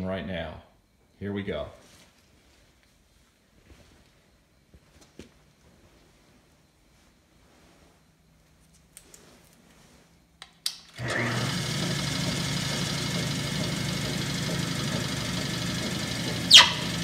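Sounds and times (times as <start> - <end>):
electric motor running pump: 11.0 - 17.0
sharp squeal falling in pitch: 16.5 - 17.0.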